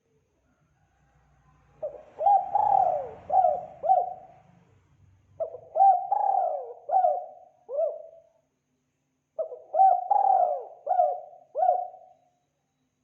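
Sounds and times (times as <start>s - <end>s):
dove cooing: 1.8s - 4.4s, 5.4s - 8.3s, 9.4s - 12.2s.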